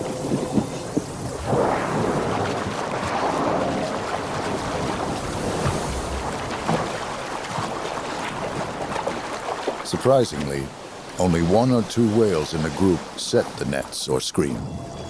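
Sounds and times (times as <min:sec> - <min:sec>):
wind buffeting microphone: 0:00.0 - 0:09.3
sea water surging: 0:00.0 - 0:15.0.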